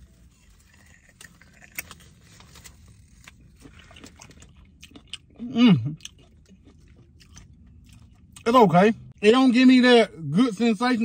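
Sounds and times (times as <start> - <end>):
person chewing corn: 0.0 - 8.6.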